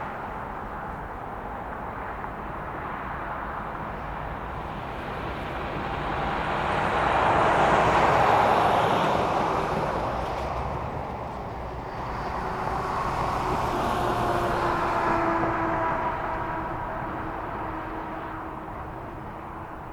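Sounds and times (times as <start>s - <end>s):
vehicle passing by: 11.5s - 19.1s.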